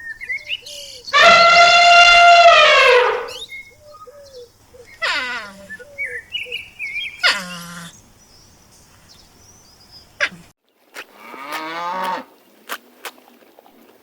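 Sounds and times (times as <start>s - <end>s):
animal call dropping in pitch: 1.1s - 3.4s
cow mooing: 1.1s - 3.4s, 5.0s - 5.8s, 11.2s - 12.3s.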